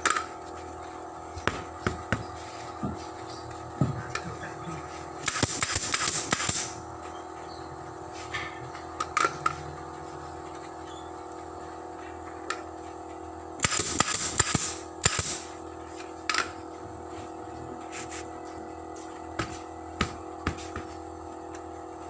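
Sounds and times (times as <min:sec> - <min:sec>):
background hum: 0:00.0 - 0:22.0
pneumatic staple gun firing: 0:05.2 - 0:06.8, 0:13.6 - 0:15.5.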